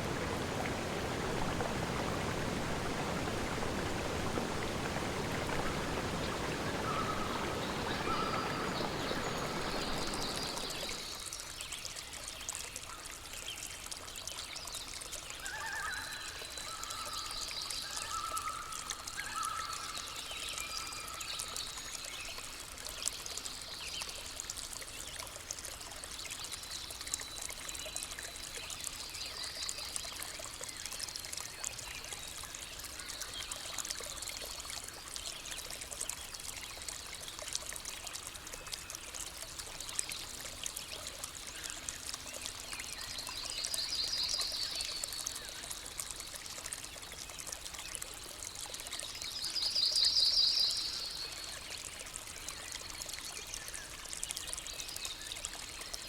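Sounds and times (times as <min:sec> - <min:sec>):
stream trickling: 0:00.0 - 0:56.0
birds singing: 0:04.8 - 0:11.2.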